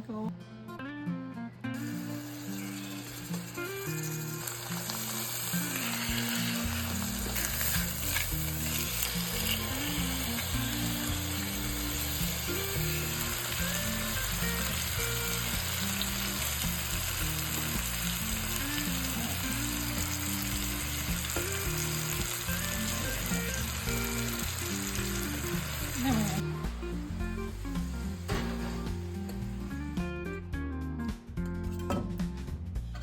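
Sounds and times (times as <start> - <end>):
food sizzling in a pan: 1.8 - 30.0
background music with bass line: 2.8 - 33.0.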